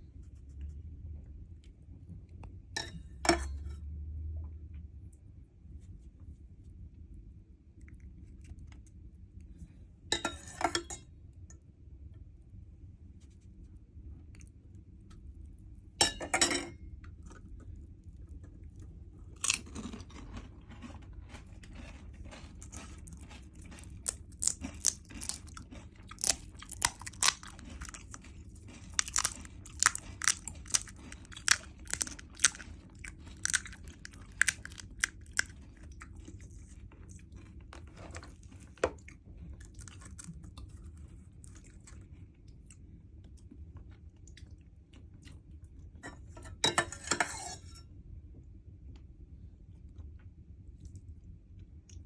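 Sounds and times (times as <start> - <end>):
crunching and chewing crisp shells: 16.8 - 46.4.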